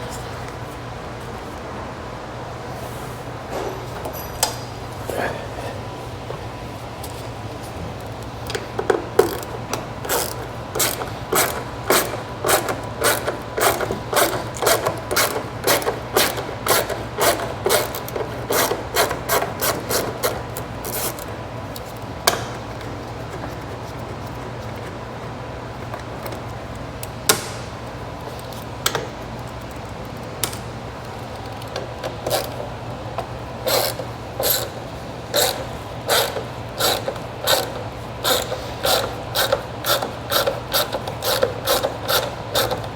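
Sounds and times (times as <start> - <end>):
ratchet wrench clicking: 10.1 - 20.0, 33.7 - 34.7, 35.3 - 42.8.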